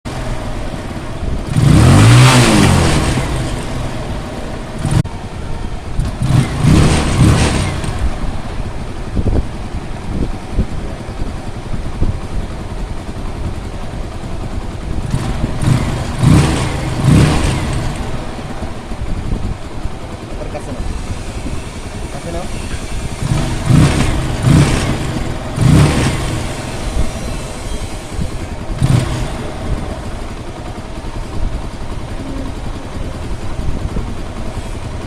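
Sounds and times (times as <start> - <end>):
motorcycle engine revving and idling: 0.0 - 35.0.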